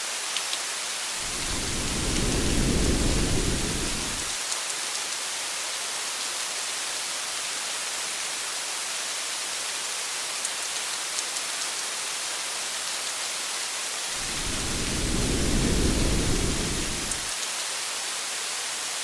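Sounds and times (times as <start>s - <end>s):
rain hiss: 0.9s - 4.5s, 14.1s - 17.5s
low rumble of thunder: 1.2s - 4.3s, 14.2s - 17.3s.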